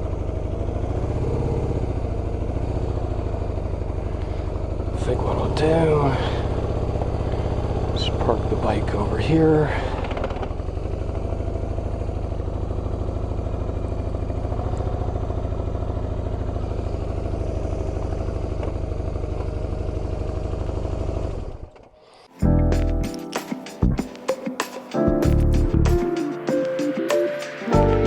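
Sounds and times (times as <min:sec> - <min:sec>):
motorcycle engine running: 0:00.0 - 0:21.8.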